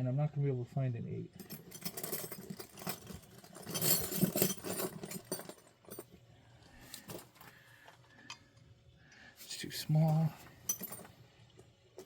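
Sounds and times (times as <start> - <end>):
metal sockets clinking and rattling: 1.4 - 6.1, 10.7 - 11.1.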